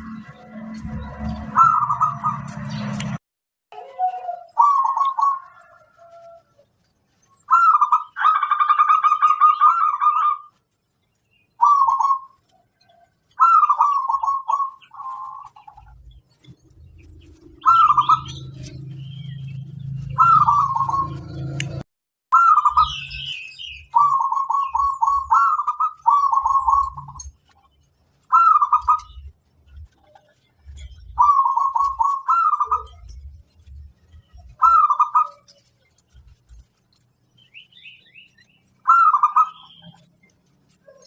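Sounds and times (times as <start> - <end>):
zebra dove cooing: 3.8 - 6.4, 11.6 - 12.4, 13.4 - 16.0, 17.3 - 18.7, 20.2 - 21.2, 23.9 - 27.3, 28.3 - 29.2, 31.2 - 33.2, 34.6 - 35.5, 38.9 - 40.0.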